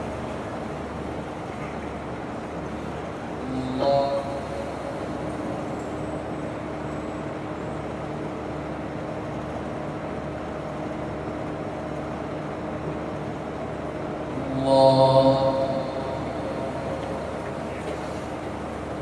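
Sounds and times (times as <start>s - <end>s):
sound system hum: 0.0s - 19.0s
man chanting: 3.4s - 5.2s, 14.4s - 17.8s.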